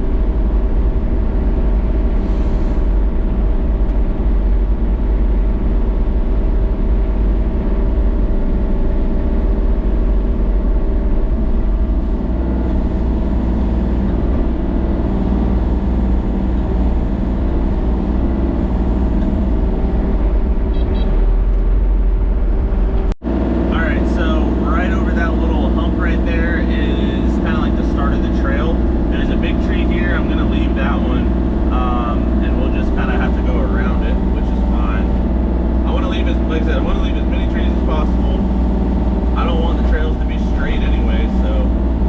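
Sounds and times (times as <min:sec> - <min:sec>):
vehicle engine droning: 0:00.0 - 0:42.0.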